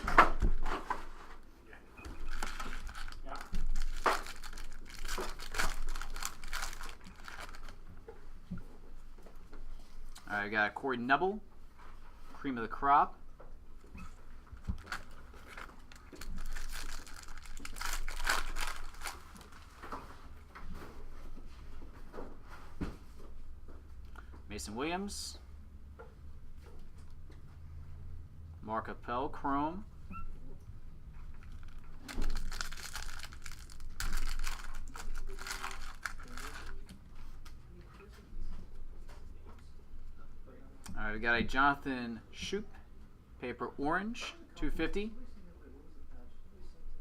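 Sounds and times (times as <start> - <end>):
cards rustling: 2.1 - 7.9, 14.5 - 20.0, 31.3 - 37.6
card pack wrapper crinkling: 2.2 - 7.8, 14.6 - 19.8, 31.4 - 37.0.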